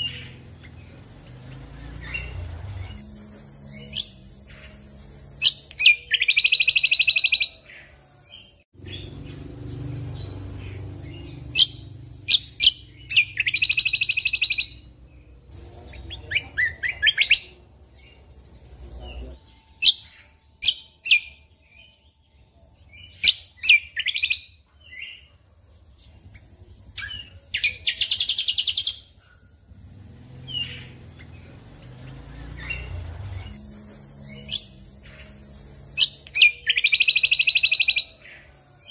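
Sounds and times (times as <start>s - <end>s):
songbird trilling: 0.0s - 25.3s, 26.1s - 29.5s, 30.4s - 38.9s.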